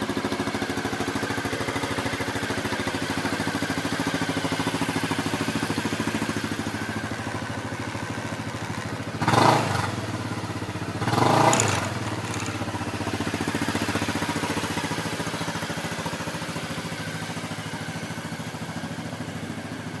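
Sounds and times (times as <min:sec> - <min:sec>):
scooter engine revving: 0:00.0 - 0:19.9
scooter engine idling: 0:00.0 - 0:20.0.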